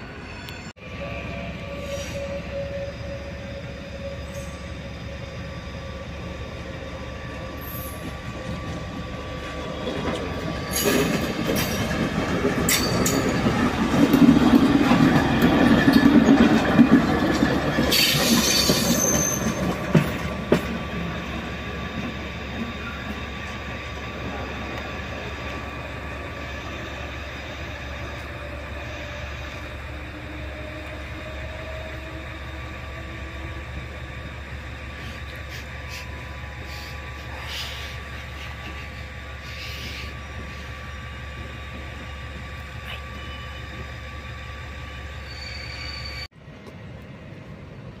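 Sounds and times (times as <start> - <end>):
train passing: 0.0 - 48.0
train clunks: 7.4 - 25.7
wheel squeal: 9.8 - 11.9, 17.7 - 20.0, 45.2 - 46.3.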